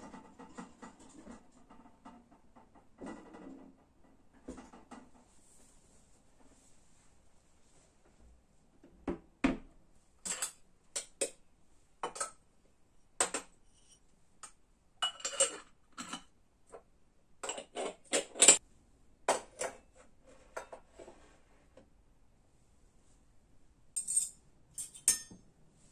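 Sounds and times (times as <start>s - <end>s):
dishes and cutlery clinking: 10.2s - 11.3s, 12.0s - 12.4s, 13.2s - 16.3s, 24.0s - 25.5s.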